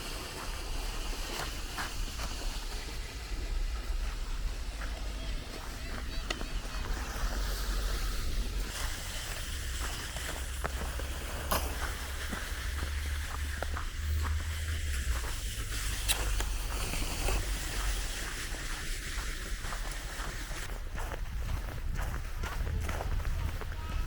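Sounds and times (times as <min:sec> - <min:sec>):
faint outdoor hiss: 0:00.0 - 0:20.7
steady low rumble: 0:00.0 - 0:24.0.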